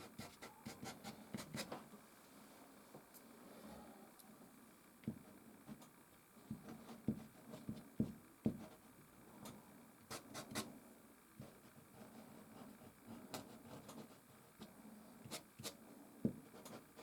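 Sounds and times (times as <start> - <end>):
dull taps on canvas: 6.5 - 8.7.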